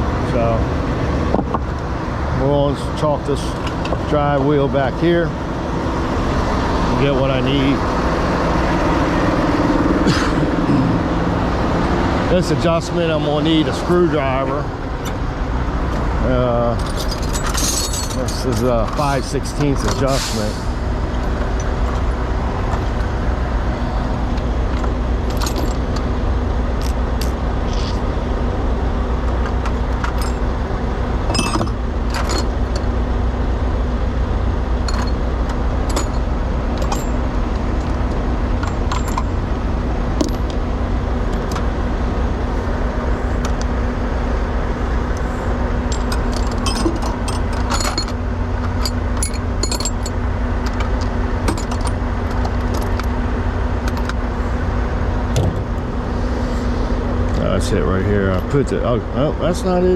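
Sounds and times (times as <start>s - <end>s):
diesel engine idling: 0.0s - 59.9s
hand tools clinking: 16.6s - 20.4s, 31.3s - 32.9s, 34.8s - 35.2s, 35.8s - 38.0s, 38.6s - 39.4s, 45.9s - 53.1s.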